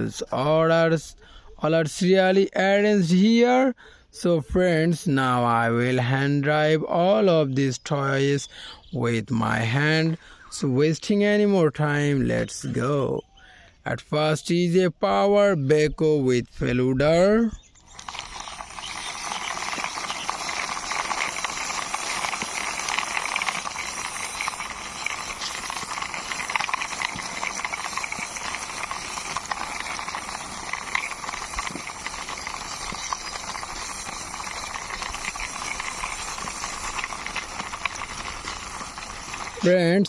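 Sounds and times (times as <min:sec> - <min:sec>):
toy excavator wheels rattling: 0:17.8 - 0:40.0.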